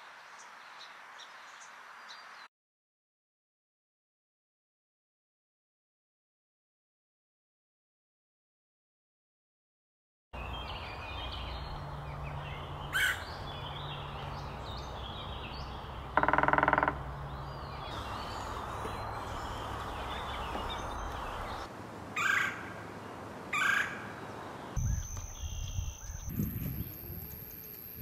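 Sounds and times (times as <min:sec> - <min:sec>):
outdoor background noise: 0:00.0 - 0:02.5, 0:10.4 - 0:28.0
birds calling: 0:10.4 - 0:28.0
loud nasal bird call: 0:12.5 - 0:22.9.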